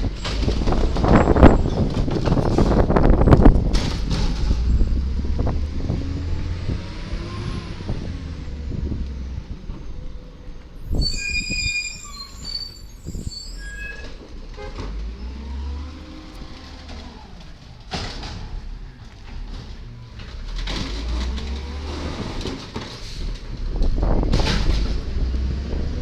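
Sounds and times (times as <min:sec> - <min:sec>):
garbage truck diesel engine: 0:00.0 - 0:26.0
high metallic squeals: 0:10.8 - 0:14.2.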